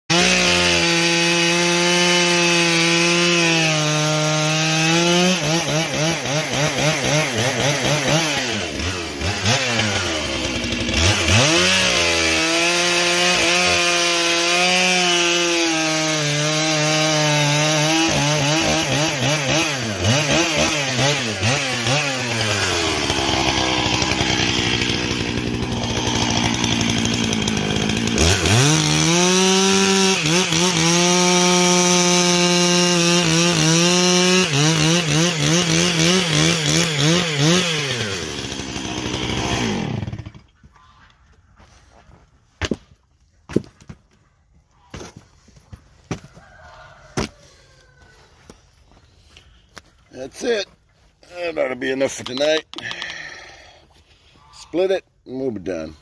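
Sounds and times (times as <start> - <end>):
chainsaw cutting wood: 0.1 - 40.6.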